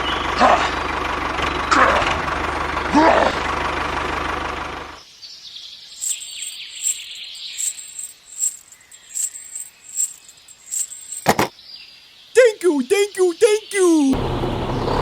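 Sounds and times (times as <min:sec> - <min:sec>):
outdoor ambience: 0:00.0 - 0:15.0
faint high chirp: 0:05.7 - 0:11.2.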